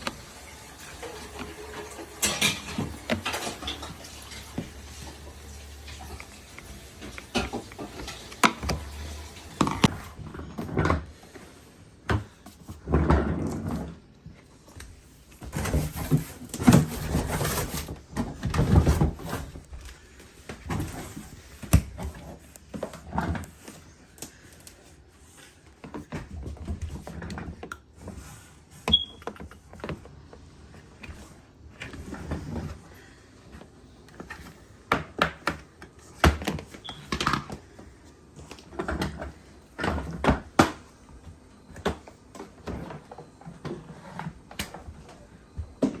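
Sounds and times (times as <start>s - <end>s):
rustling and scraping: 0.0s - 28.9s.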